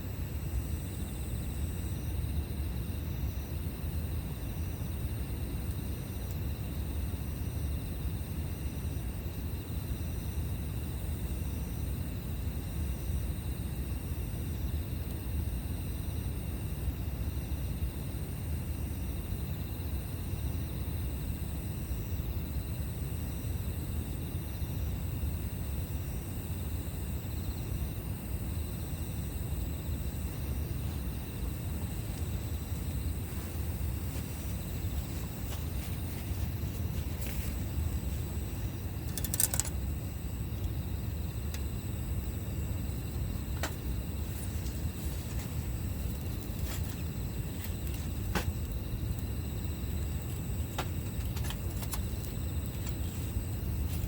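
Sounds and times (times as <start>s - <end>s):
campfire rumbling: 0.0s - 54.0s
insects chirring: 0.0s - 54.0s
fire popping: 31.0s - 54.0s.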